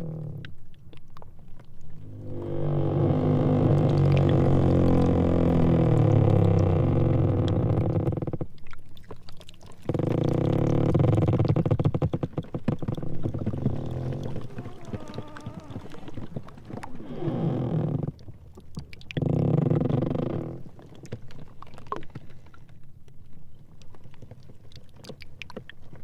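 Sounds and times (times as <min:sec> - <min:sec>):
sea ice grinding and groaning: 0:01.8 - 0:08.5, 0:09.8 - 0:18.4, 0:19.1 - 0:22.0
ice squealing: 0:12.9 - 0:18.0.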